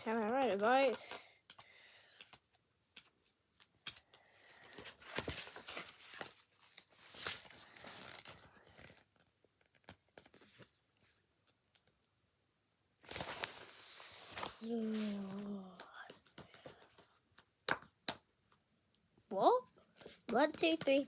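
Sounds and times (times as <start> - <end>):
rustling of pages: 1.5 - 12.0, 13.0 - 18.2, 19.7 - 21.0
books being handled: 2.2 - 12.0, 13.0 - 18.2, 19.6 - 21.0.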